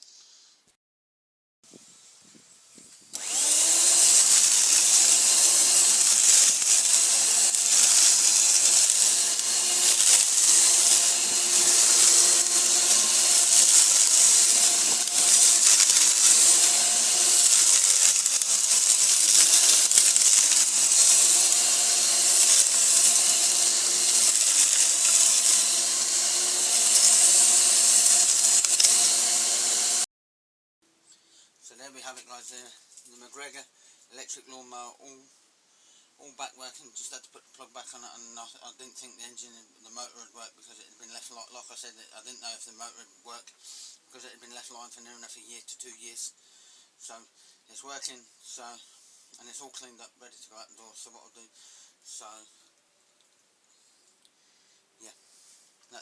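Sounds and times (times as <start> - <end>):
electric lawnmower whining: 3.1 - 30.1.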